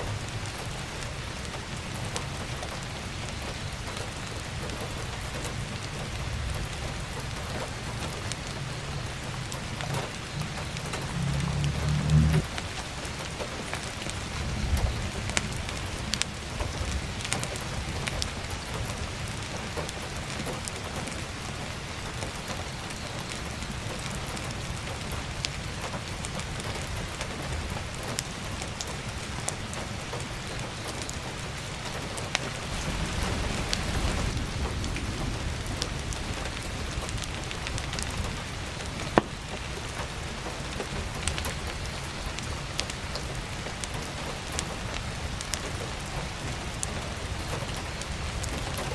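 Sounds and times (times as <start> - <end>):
heavy rain on roof: 0.0 - 48.9
firewood crackling and popping: 0.1 - 48.9
low rumble: 6.2 - 12.8, 32.6 - 39.1.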